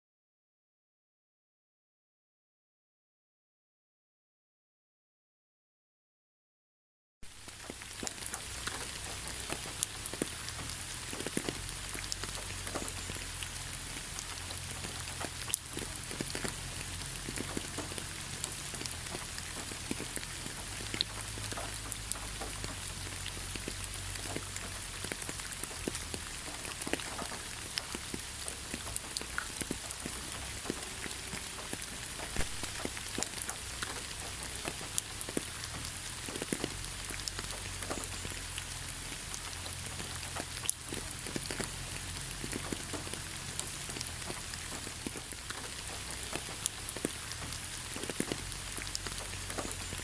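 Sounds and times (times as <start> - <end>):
rain falling in forest: 7.2 - 50.0
raindrops tapping close by: 7.2 - 50.0.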